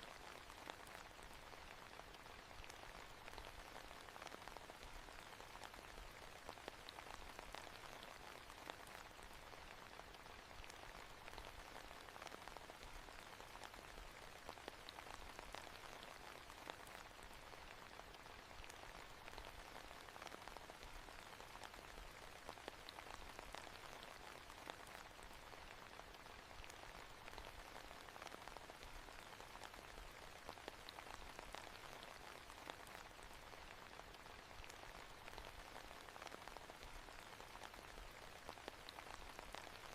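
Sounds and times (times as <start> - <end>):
faint rain falling: 0.0 - 39.9.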